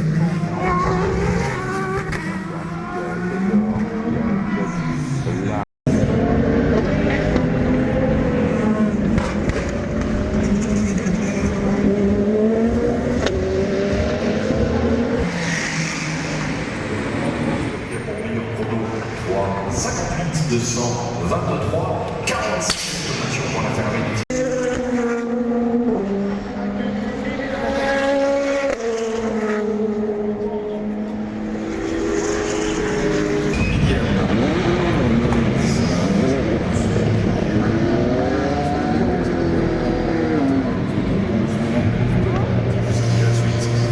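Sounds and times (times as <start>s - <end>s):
race car engines passing: 0.0s - 43.9s
race car passing close: 22.4s - 43.9s.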